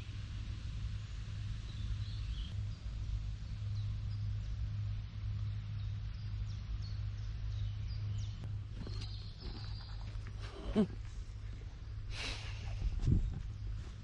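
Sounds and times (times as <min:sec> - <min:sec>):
steady low hum: 0:00.0 - 0:14.0
small birds chirping: 0:01.5 - 0:11.5.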